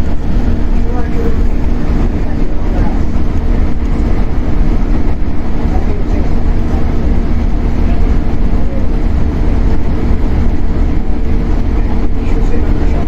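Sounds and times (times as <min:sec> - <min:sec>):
traction motor hum: 0:00.0 - 0:13.0
train wheels rumbling on rail: 0:00.0 - 0:13.0.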